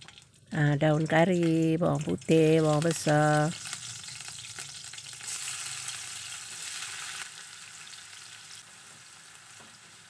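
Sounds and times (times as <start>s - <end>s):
hot oil sizzling in wok: 0.0s - 10.0s.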